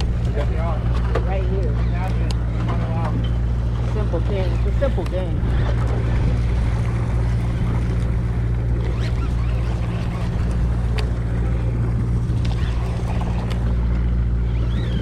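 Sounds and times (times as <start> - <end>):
boat engine humming: 0.0 - 15.0
water noise: 0.0 - 15.0
wind noise: 4.5 - 15.0.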